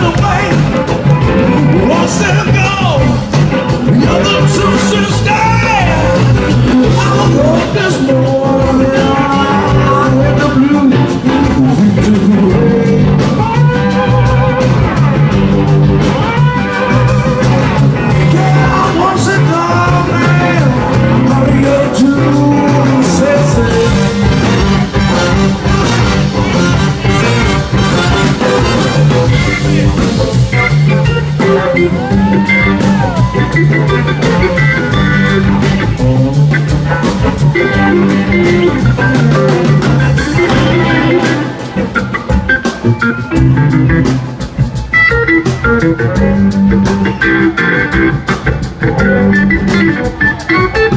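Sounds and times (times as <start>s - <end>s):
drums: 0.0s - 50.9s
guitar: 0.0s - 50.9s
person singing: 3.9s - 15.1s, 18.0s - 25.3s.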